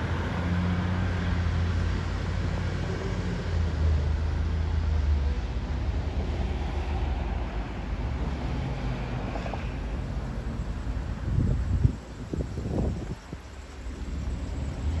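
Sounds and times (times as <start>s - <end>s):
fire engine diesel engine pulling away: 8.1s - 15.0s.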